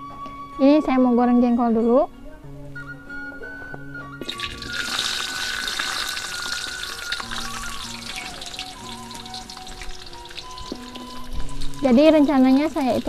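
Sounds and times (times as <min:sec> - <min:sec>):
slices frying in hot oil: 0:04.3 - 0:13.0.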